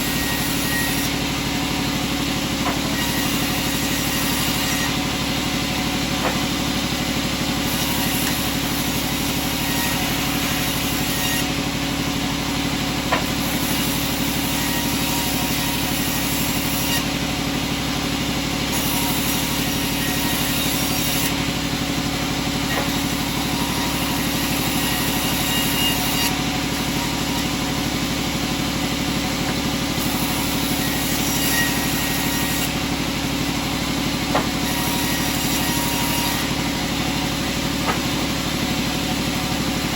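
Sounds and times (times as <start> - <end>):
sawmill machinery droning: 0.0 - 39.9
short knocks: 6.2 - 6.6, 34.3 - 34.6.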